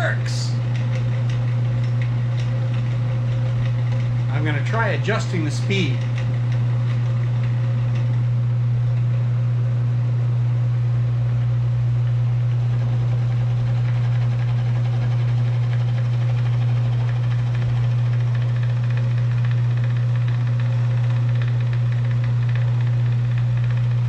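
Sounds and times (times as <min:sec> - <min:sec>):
wood lathe motor humming: 0:00.0 - 0:09.2, 0:12.4 - 0:24.0.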